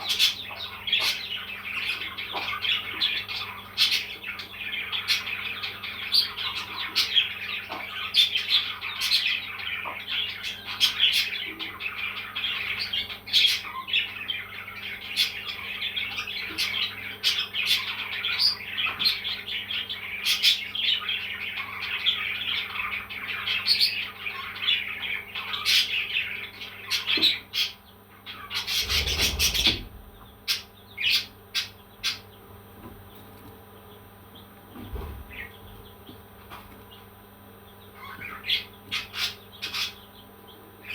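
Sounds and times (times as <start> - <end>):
parrots chirping and chattering: 0.0 - 40.9.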